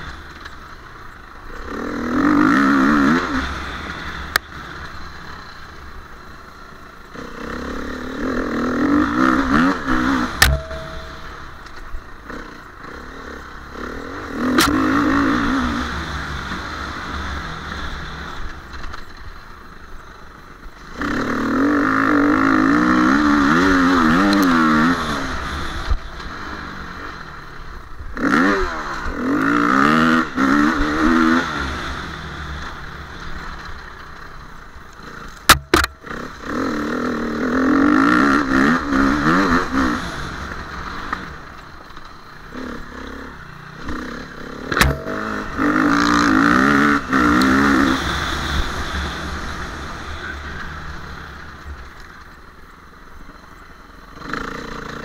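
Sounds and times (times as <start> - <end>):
motorcycle engine revving: 0.0 - 55.0
sharp knocks: 10.4 - 11.4.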